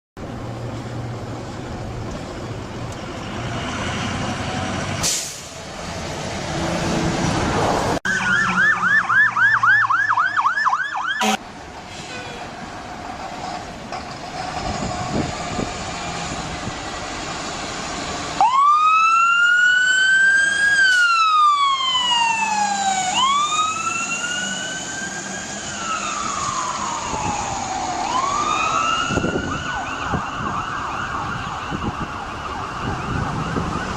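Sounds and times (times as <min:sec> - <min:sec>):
road and vehicle noise: 0:00.2 - 0:33.9
fire engine siren wailing: 0:03.6 - 0:11.4, 0:14.6 - 0:33.9.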